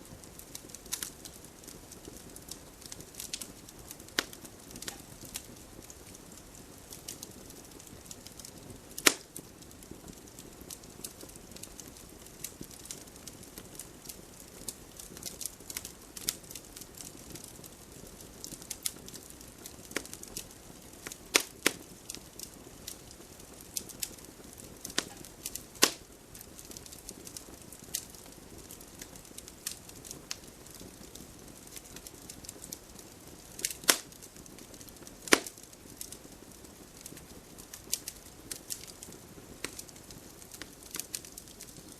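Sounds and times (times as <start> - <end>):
wood fire crackling: 0.0 - 41.9
loud sharp pops: 9.0 - 9.3, 21.3 - 21.8, 25.8 - 26.0, 33.6 - 34.1, 35.3 - 35.6.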